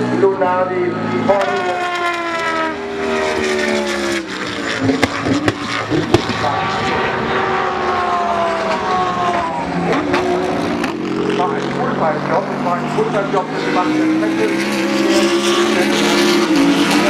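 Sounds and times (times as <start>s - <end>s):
race car engines passing: 0.0s - 17.0s.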